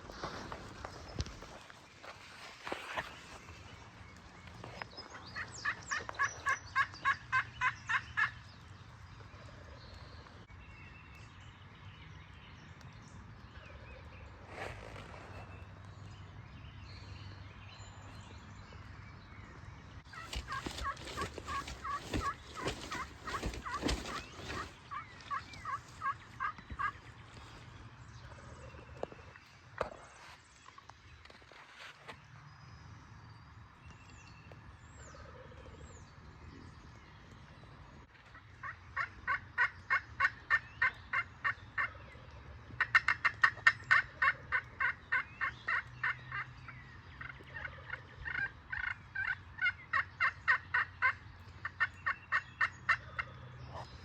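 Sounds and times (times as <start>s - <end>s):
turkey yelping: 5.6s - 8.4s, 20.1s - 26.9s, 42.8s - 46.4s, 47.2s - 51.2s.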